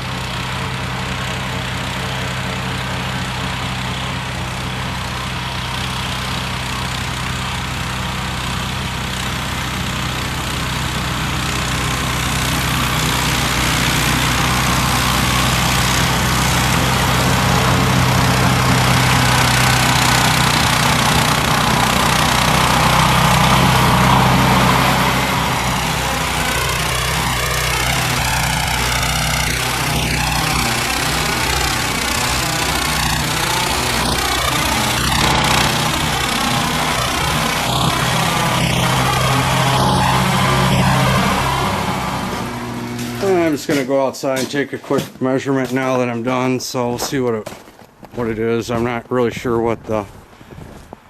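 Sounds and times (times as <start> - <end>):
snowblower engine running: 0.0 - 45.1.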